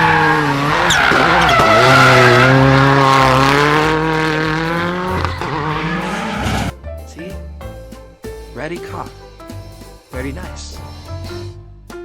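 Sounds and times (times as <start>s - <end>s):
racing car engine at high revs: 0.0s - 6.7s.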